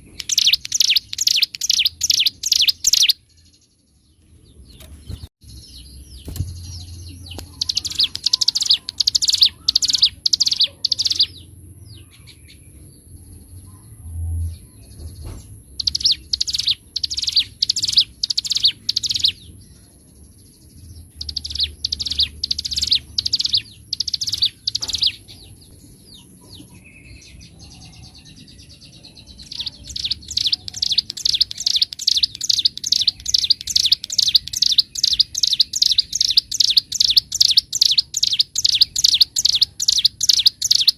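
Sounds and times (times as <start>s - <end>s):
bird singing sharp high notes: 0.0s - 3.3s, 5.4s - 11.5s.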